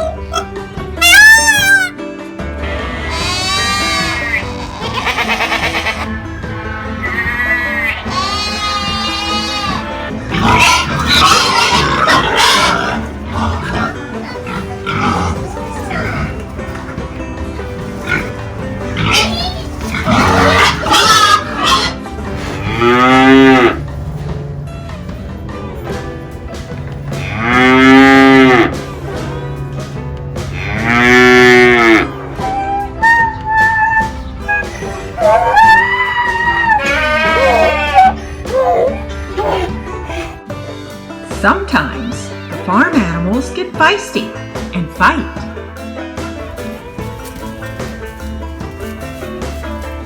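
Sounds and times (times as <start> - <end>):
harsh pig squealing: 0.0 - 2.0, 2.6 - 6.2, 6.9 - 17.2, 18.0 - 23.8, 27.2 - 28.8, 30.5 - 40.4
drawn-out animal cries: 0.0 - 24.3, 27.0 - 29.2, 30.4 - 40.4
background music: 0.0 - 50.0
cow mooing: 2.6 - 6.2, 7.0 - 17.1, 18.0 - 23.9, 27.1 - 28.9, 30.5 - 39.8.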